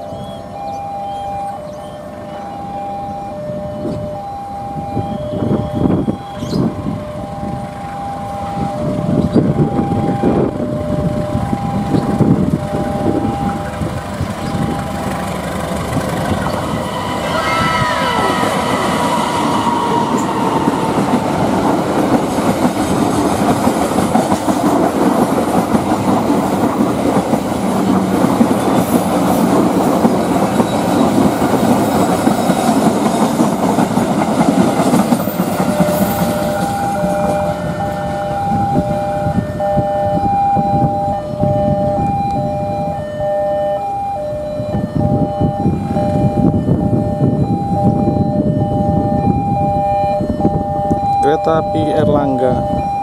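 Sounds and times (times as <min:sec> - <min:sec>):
level crossing alarm beeps: 0:00.0 - 0:22.8, 0:34.8 - 0:53.0
train wheels rumbling on rails: 0:01.3 - 0:53.0.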